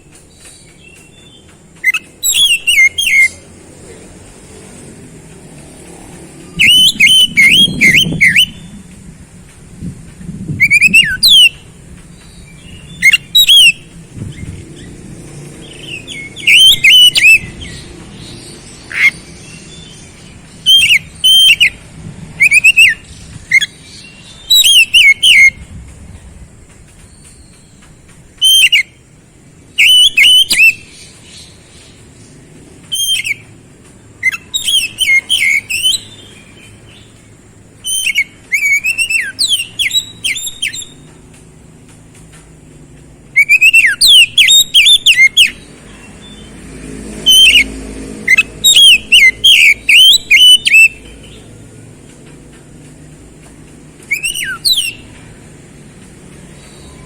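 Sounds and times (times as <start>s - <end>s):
bird singing whistled notes: 0.0s - 3.6s, 6.3s - 9.0s, 10.4s - 25.7s, 27.0s - 29.1s, 29.7s - 32.1s, 32.8s - 33.5s, 34.2s - 41.2s, 43.3s - 46.6s, 47.2s - 51.6s, 54.0s - 55.3s, 56.4s - 57.0s.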